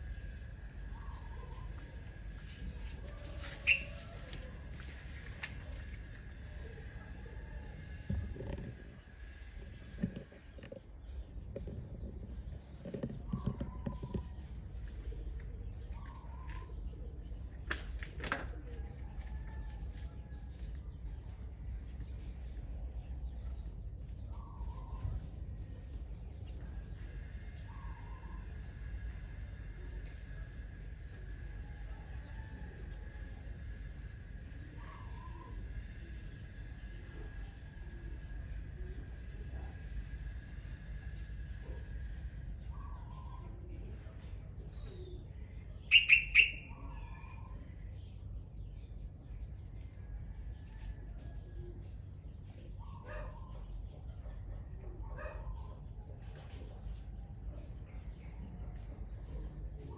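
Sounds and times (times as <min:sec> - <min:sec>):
low rumble of wind: 0:00.0 - 0:59.9
faint bird chirps: 0:00.8 - 0:06.0, 0:41.8 - 0:48.1
loud sharp bird calls: 0:03.2 - 0:05.4, 0:45.8 - 0:47.7
short high bird chirps: 0:03.6 - 0:04.1, 0:45.9 - 0:46.9
brief lower bird call: 0:45.9 - 0:47.0.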